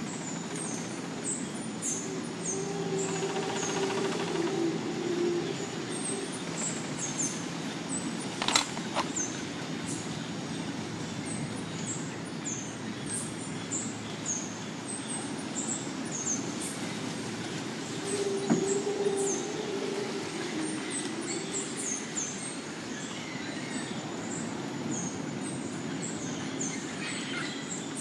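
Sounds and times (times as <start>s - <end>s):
low rushing background: 12.7s - 27.0s.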